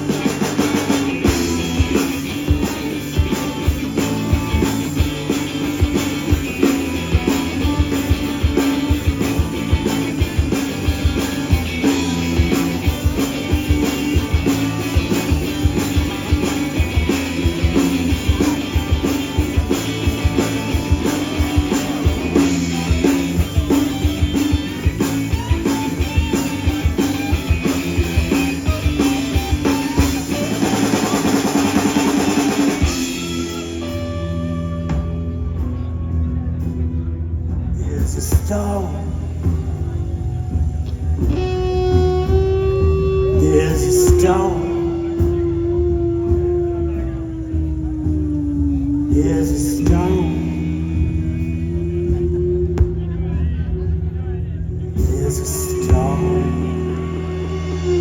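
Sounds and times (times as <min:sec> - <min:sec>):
drum kit steady beat: 0:00.0 - 0:58.0
electric guitar: 0:00.0 - 0:58.0.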